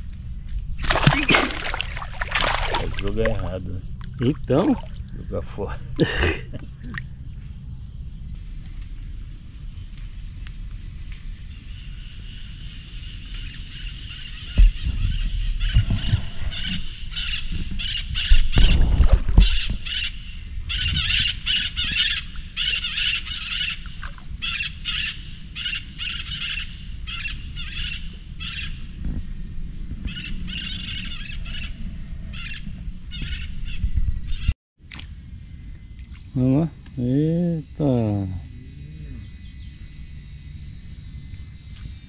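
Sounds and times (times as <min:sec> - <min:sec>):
birds calling: 0:00.5 - 0:07.6, 0:19.4 - 0:29.0.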